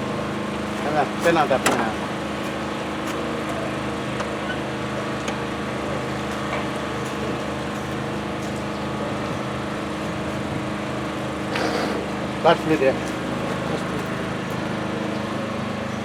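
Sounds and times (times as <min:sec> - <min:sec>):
diesel truck engine idling: 0:00.0 - 0:16.0.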